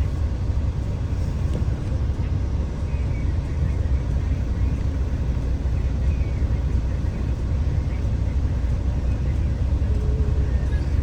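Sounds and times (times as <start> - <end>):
bus engine and road noise: 0.0 - 11.0.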